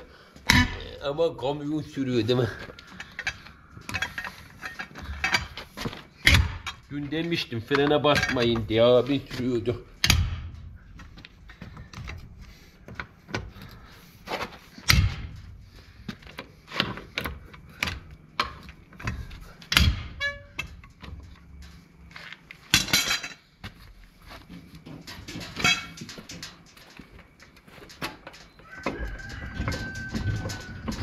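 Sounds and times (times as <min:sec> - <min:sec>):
hand tools knocking on metal: 0:02.4 - 0:10.3, 0:28.4 - 0:31.0.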